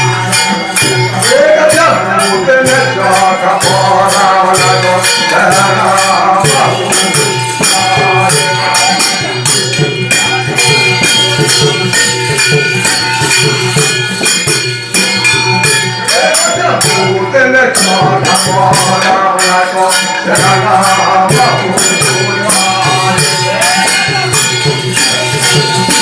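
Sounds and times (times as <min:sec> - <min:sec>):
person singing: 0:00.0 - 0:13.9, 0:16.0 - 0:26.0
jingling hand percussion: 0:00.0 - 0:26.0
sustained instrumental tones: 0:00.0 - 0:26.0.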